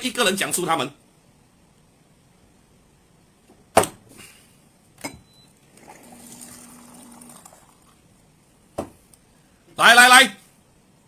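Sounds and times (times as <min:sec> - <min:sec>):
soft steady hiss: 0:00.0 - 0:11.0
sharp knocks: 0:08.8 - 0:09.0.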